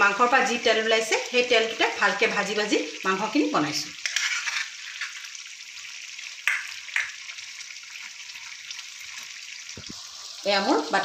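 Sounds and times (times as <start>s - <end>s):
chicken sizzling in a wok: 0.0s - 11.0s
spatula scraping: 4.0s - 5.4s.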